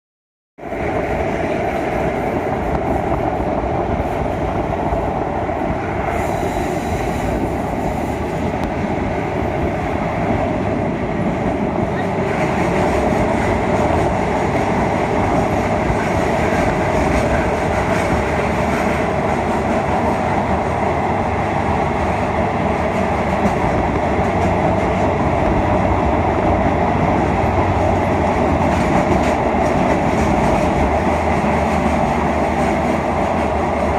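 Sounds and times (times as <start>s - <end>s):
train running on rails: 0.6s - 33.9s.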